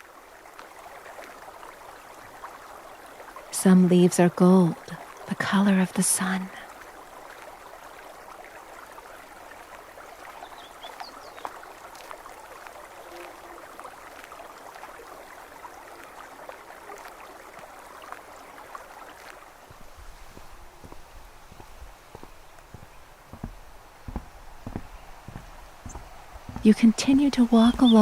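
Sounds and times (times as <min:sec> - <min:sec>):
stream trickling and babbling: 0:00.0 - 0:28.0
soft low thuds: 0:19.7 - 0:27.2.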